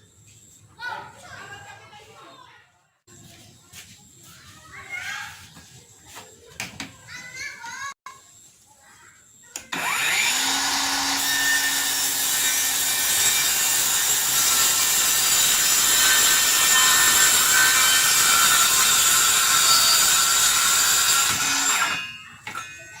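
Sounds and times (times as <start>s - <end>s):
circular saw cutting wood: 9.6s - 23.0s.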